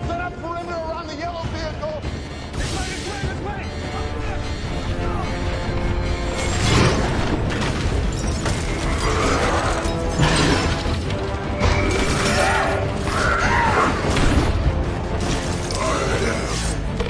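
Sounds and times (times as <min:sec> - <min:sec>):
dramatic music: 0:00.0 - 0:17.0.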